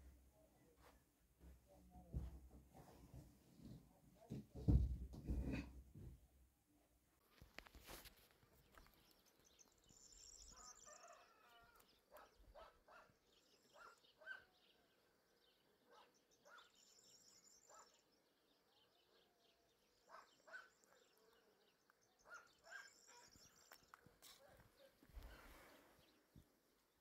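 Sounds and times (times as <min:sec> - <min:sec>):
faint bird chirps: 0:08.7 - 0:26.3.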